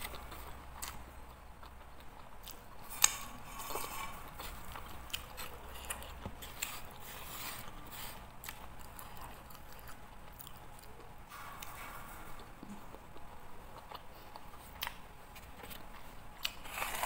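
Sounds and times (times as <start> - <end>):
wet chewing and lip smacks: 12.9 - 16.6.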